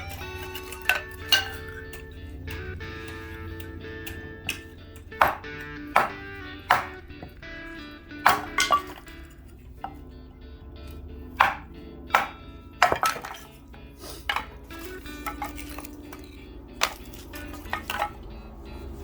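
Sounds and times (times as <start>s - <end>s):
background music: 0.0s - 19.0s
baton striking knife through wood: 4.0s - 7.4s, 8.2s - 10.0s, 11.4s - 13.6s, 14.2s - 18.2s.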